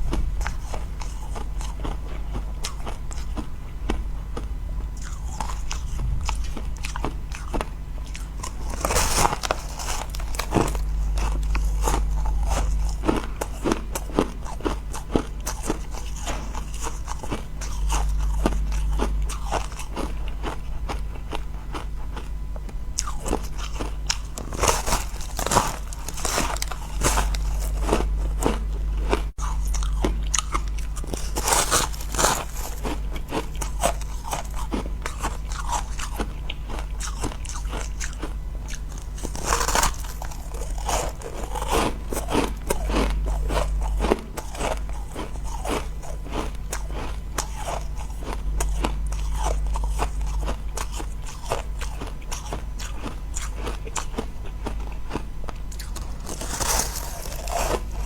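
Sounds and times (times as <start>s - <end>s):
crunching and chewing ice: 0.0s - 58.0s.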